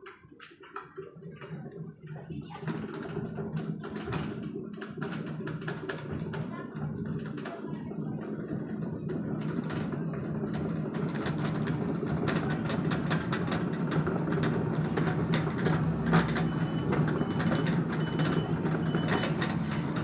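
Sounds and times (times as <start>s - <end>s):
excavator diesel engine running: 7.8s - 20.0s
metallic clanks and knocks: 9.5s - 20.0s.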